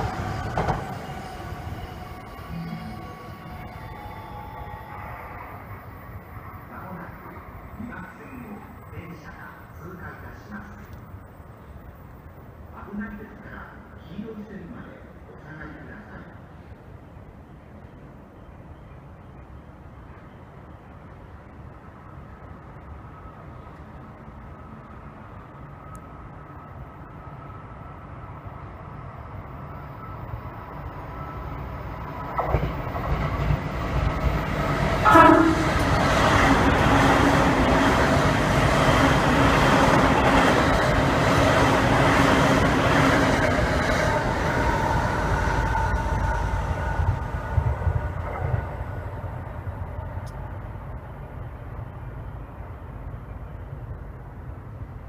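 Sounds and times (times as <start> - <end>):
electric train passing: 0.0 - 55.0
train horn blast: 35.0 - 36.7.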